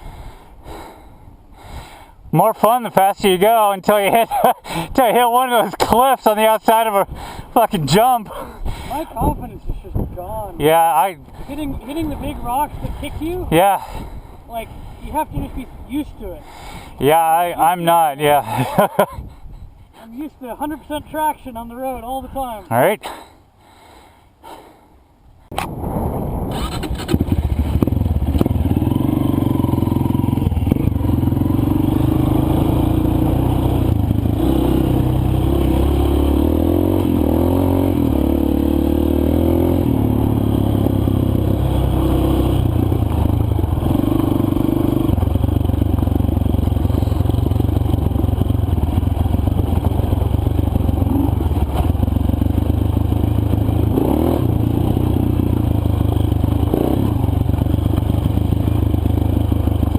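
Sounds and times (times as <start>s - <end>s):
dirt bike engine running: 25.8s - 59.9s.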